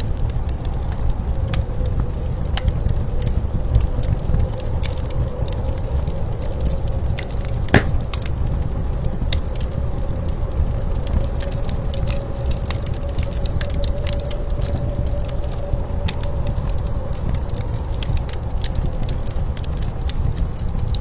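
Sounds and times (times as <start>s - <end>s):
wood fire crackling and popping: 7.8s - 8.1s.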